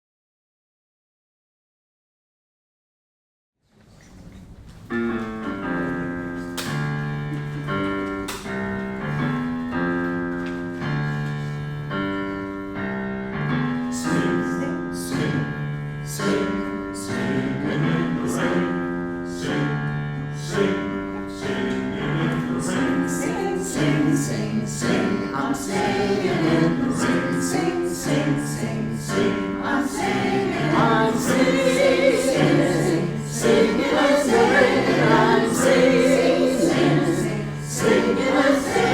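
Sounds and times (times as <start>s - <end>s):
choir singing in harmony: 13.5s - 38.9s.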